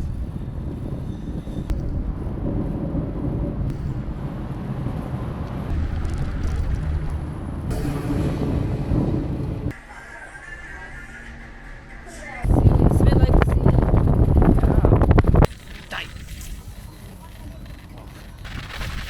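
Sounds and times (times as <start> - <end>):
vehicle road noise rumble: 0.0 - 9.8, 11.9 - 18.8.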